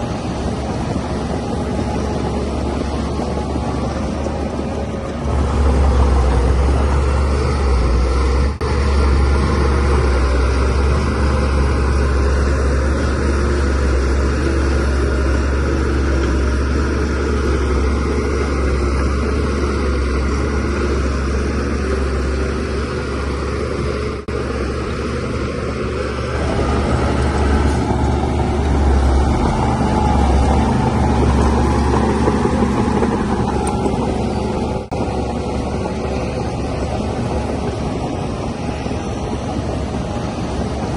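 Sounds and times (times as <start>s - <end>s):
bulldozer diesel engine rumbling: 0.0s - 40.9s.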